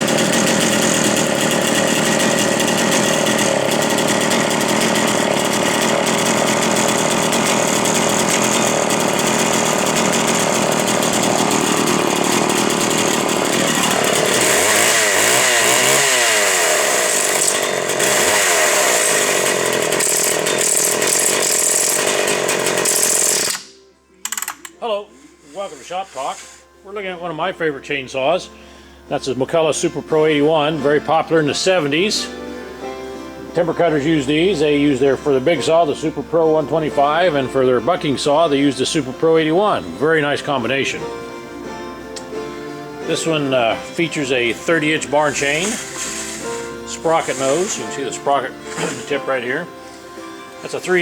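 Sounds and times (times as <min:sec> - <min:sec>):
chainsaw running and revving: 0:00.0 - 0:23.7, 0:43.0 - 0:51.0.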